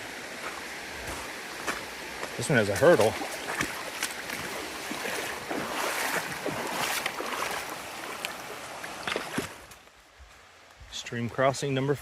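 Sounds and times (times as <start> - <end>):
stream rushing over rocks: 0.0 - 9.9
short water splashes: 0.4 - 9.7.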